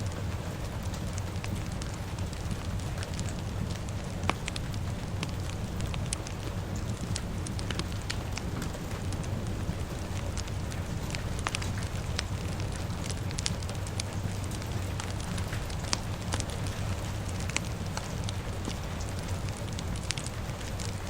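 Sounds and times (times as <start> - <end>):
fire crackling and popping: 0.0 - 21.0
rain hissing: 0.0 - 21.0
steady low rumble: 0.0 - 21.0.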